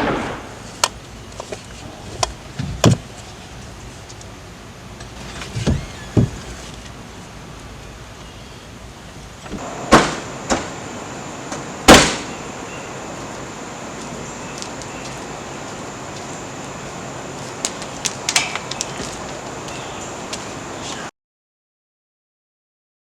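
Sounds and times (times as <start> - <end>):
loud bangs: 0.0 - 0.9, 9.5 - 12.5
steady hiss: 0.0 - 21.1
smaller knocks: 5.2 - 6.6.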